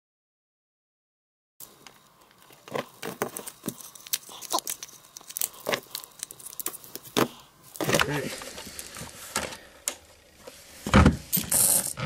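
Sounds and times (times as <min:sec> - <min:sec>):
small objects clicking and rustling: 0:01.7 - 0:10.0.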